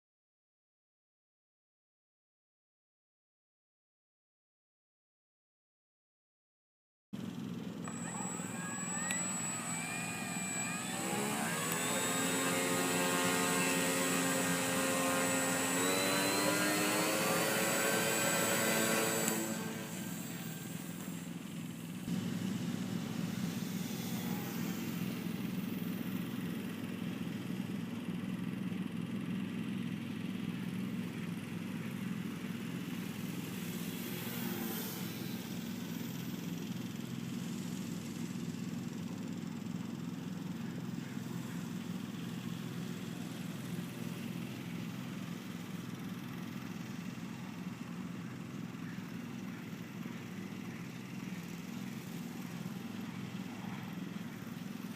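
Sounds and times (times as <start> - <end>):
motor humming: 7.2 - 28.2, 30.6 - 38.3.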